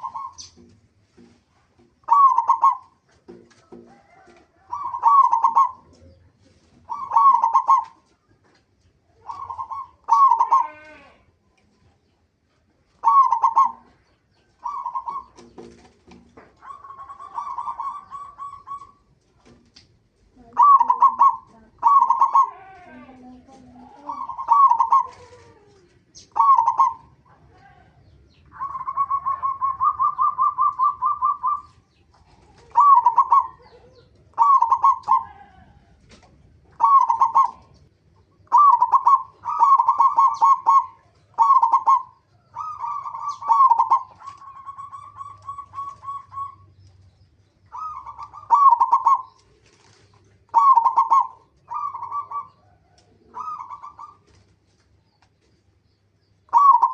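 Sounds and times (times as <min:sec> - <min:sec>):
doves cooing: 0:00.0 - 0:56.9.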